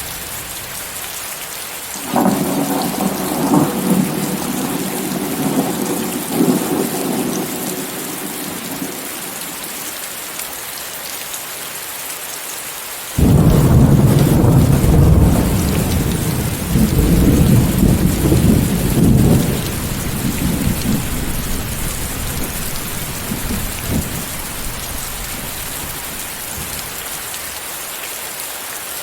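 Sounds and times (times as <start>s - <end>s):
rain hissing: 0.0s - 11.0s, 13.1s - 28.2s
loud crack of thunder: 2.0s - 9.6s, 13.2s - 27.2s
thunder rumbling: 2.0s - 9.9s, 13.2s - 27.2s.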